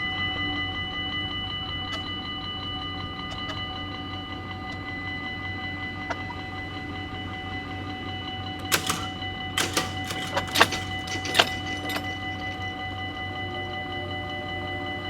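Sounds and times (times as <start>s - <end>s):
level-crossing warning bell: 6.6s - 15.0s
sharp irregular clacks: 8.6s - 12.8s.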